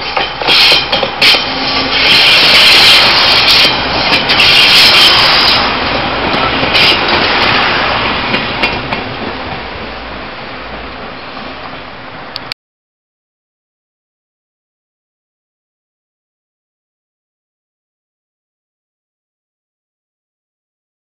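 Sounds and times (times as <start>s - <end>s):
high squealing of wheels: 0.0s - 8.0s
diesel railcar passing: 0.0s - 12.5s
wheels rumbling over rails: 0.0s - 12.5s.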